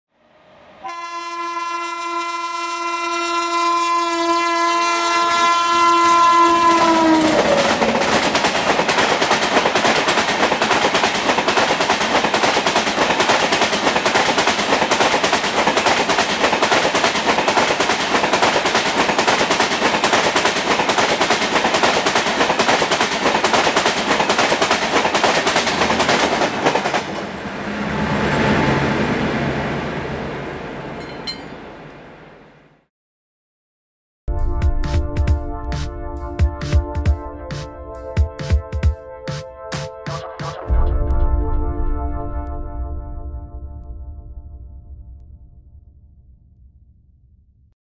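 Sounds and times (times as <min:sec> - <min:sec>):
train horn blast: 0:00.8 - 0:08.0
train rumble: 0:06.6 - 0:32.2
train wheels clickety-clack: 0:06.8 - 0:27.3.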